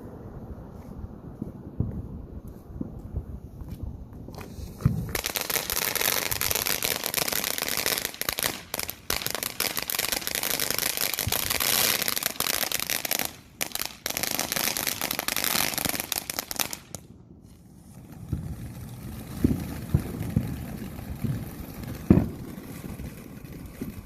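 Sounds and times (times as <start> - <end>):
firework crackling: 1.7 - 24.0
firework thump: 3.7 - 5.2, 21.2 - 22.4.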